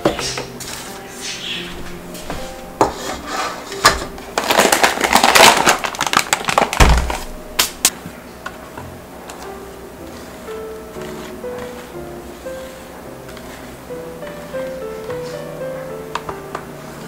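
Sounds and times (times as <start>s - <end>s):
soft background music: 0.0s - 6.3s, 7.3s - 17.0s
flour rattling in metal pan: 2.8s - 6.8s.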